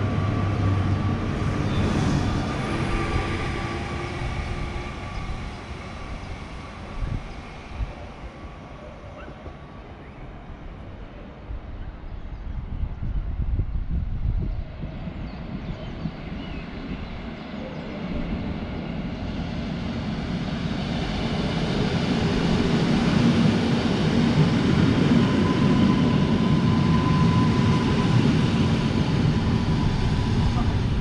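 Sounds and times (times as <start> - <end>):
electric train rumble: 0.0 - 31.0.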